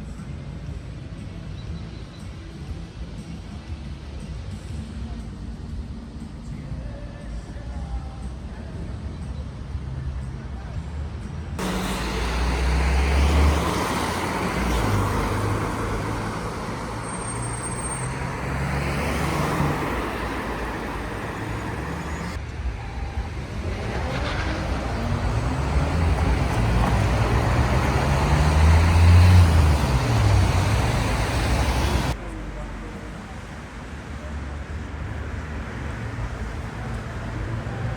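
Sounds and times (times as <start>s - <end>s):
vehicles passing: 11.6s - 37.9s.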